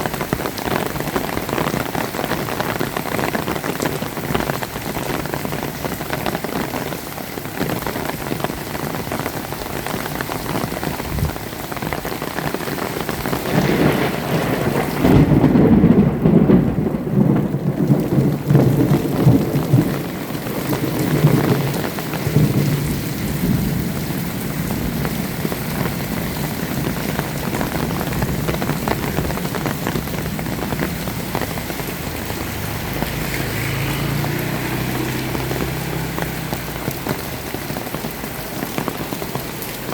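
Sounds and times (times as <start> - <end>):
heavy rain: 0.0 - 39.9
thunder rumble: 13.0 - 39.0.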